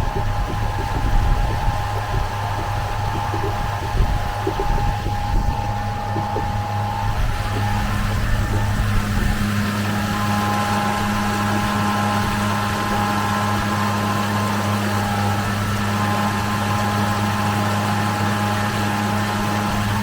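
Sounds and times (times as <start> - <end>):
steady rushing noise: 0.0 - 13.5
electric outboard motor running: 0.0 - 20.0.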